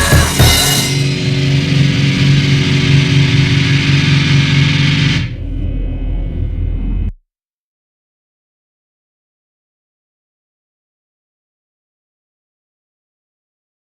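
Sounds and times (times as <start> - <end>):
electric guitar chord ringing: 0.0 - 6.9
low hum: 0.0 - 7.2.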